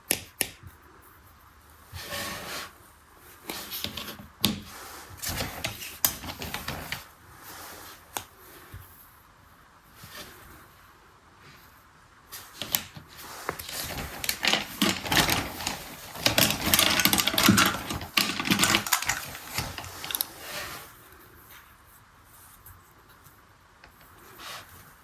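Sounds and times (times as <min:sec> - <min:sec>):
toy mechanism rapid clicking: 0:14.3 - 0:20.3.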